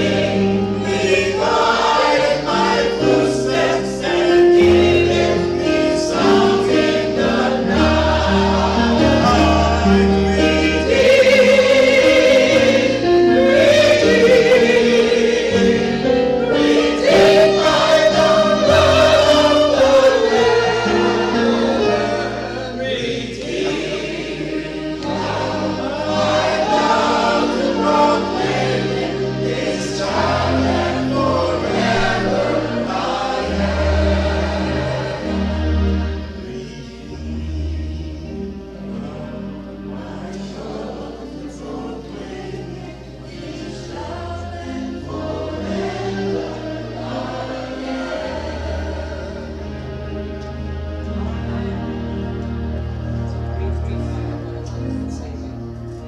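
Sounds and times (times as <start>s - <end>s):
choir singing gospel music: 0.0s - 56.0s.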